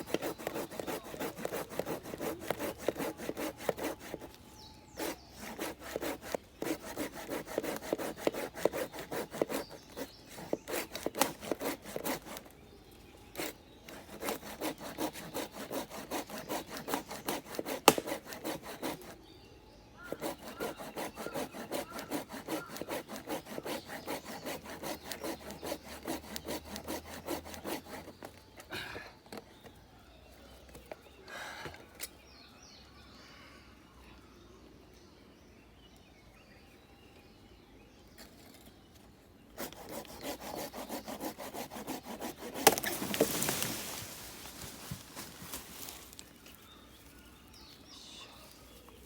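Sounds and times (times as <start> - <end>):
hand saw cutting wood: 0.0 - 12.6, 13.3 - 19.2, 20.1 - 28.6, 39.6 - 46.2.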